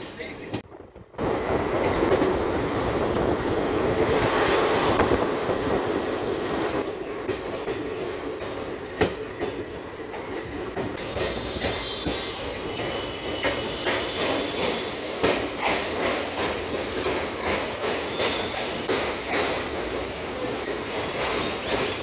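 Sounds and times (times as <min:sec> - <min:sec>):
train wheels clattering on rails: 0:00.3 - 0:22.0
wind rushing: 0:00.8 - 0:06.8.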